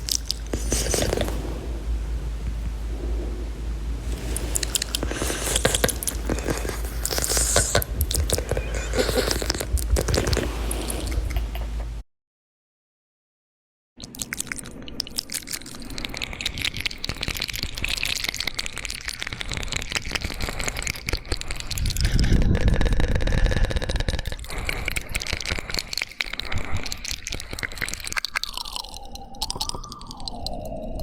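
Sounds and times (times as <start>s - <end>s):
wet mouth clicks and smacks: 0.0s - 1.5s, 4.1s - 11.9s, 14.0s - 31.0s
low rumble: 0.0s - 12.0s.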